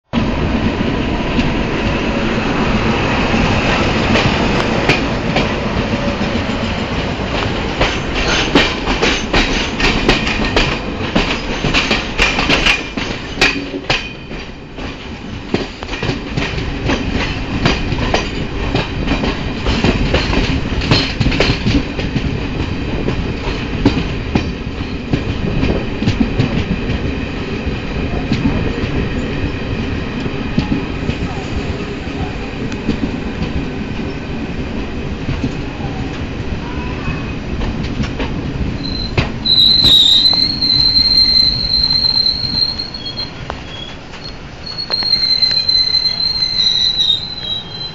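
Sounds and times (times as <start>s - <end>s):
train wheels clickety-clack: 2.7s - 47.9s.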